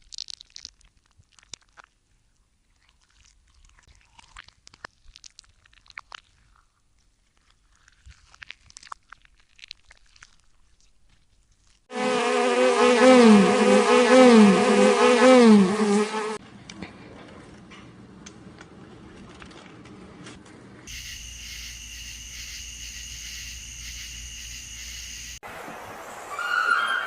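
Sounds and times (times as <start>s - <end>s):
faint steady hum: 20.9s - 25.4s
farm animal wavering call: 26.3s - 27.0s.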